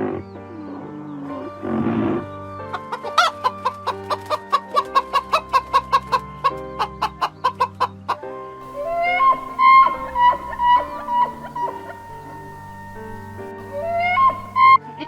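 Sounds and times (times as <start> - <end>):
background music: 8.6 - 14.8
chicken clucking: 8.6 - 14.8
rough chicken call: 8.6 - 14.8.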